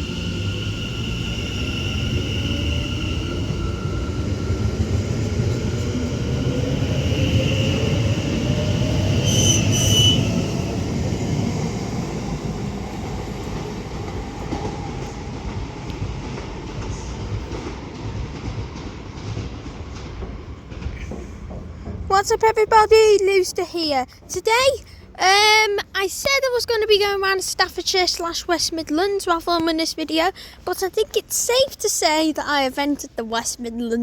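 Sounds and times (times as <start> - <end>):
electric train running: 0.0 - 20.4
wheels squealing: 6.5 - 10.6.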